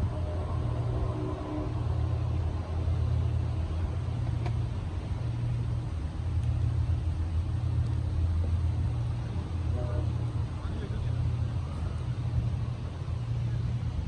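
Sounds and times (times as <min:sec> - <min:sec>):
distant train rumbling past: 0:00.0 - 0:14.0.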